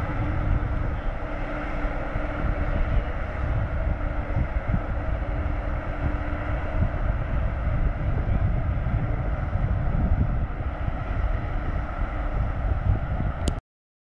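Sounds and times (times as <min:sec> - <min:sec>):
ship engine hum: 0:00.0 - 0:13.6
wind buffeting microphone: 0:00.0 - 0:13.6.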